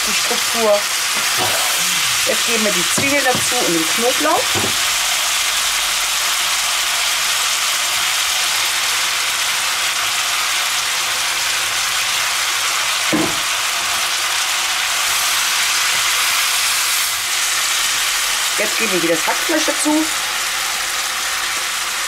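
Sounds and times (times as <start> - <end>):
vegetables sizzling in oil: 0.0 - 22.0
brief thud: 13.1 - 13.5.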